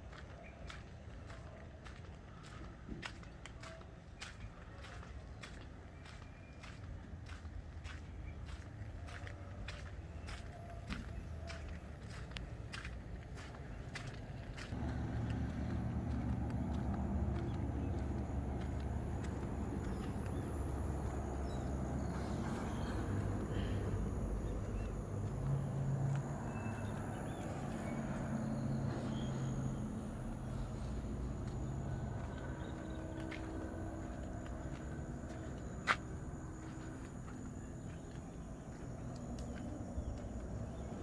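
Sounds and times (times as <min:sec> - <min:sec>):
vehicle engine running: 0:14.0 - 0:41.0.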